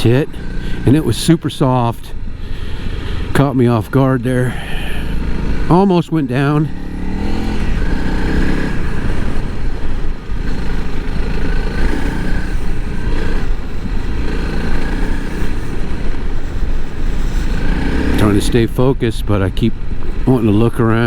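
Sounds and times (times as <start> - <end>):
motorcycle engine under load: 0.0 - 21.0.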